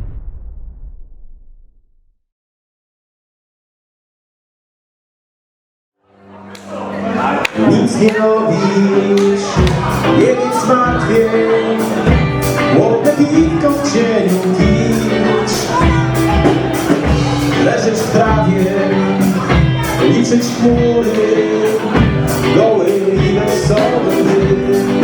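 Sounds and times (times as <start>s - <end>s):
band playing dance music: 7.0s - 25.0s
steady drum beat: 9.2s - 25.0s.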